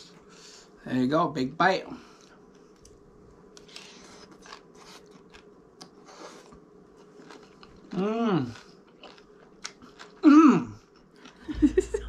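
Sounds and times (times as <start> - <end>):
crunchy chewing: 2.2 - 11.6.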